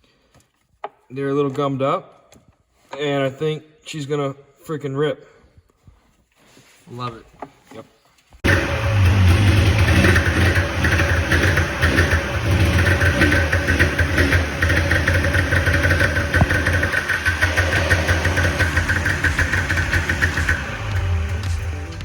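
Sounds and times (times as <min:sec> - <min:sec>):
snowmobile engine running: 0:08.4 - 0:22.0.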